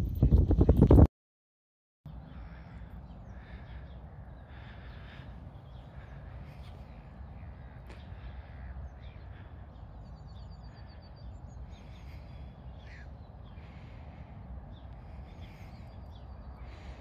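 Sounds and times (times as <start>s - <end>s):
birds calling: 2.1s - 17.0s.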